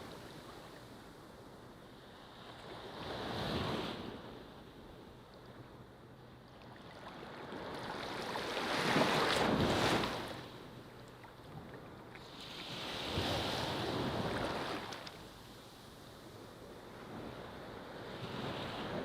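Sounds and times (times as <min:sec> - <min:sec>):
ocean waves breaking on beach: 0:06.8 - 0:10.7, 0:12.2 - 0:15.4.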